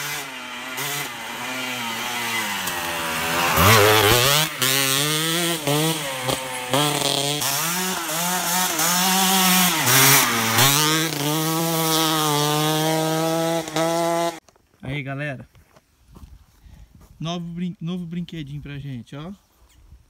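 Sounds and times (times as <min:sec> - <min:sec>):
dirt bike engine revving: 0:00.0 - 0:14.4.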